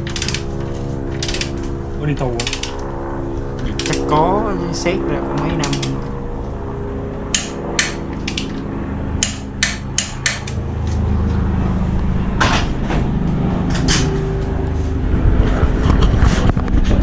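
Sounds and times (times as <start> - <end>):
steady low hum: 0.0 - 17.0
hammer tapping on metal: 9.2 - 10.5.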